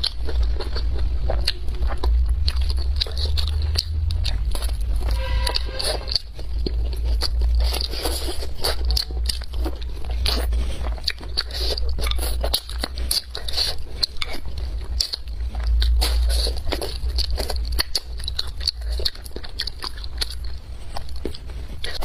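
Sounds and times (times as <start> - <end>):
person chewing crunchy food: 0.0 - 22.0
steady low hum: 0.0 - 22.0
brief pitched sound: 5.0 - 6.2.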